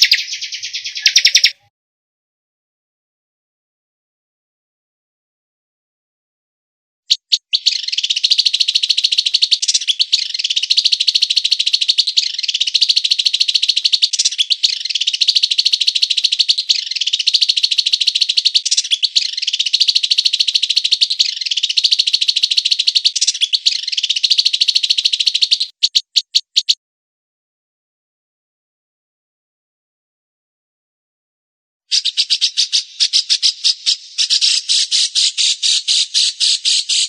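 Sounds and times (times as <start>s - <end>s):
recorded songbird trilling: 0.0s - 1.7s, 7.1s - 26.8s, 31.9s - 37.0s.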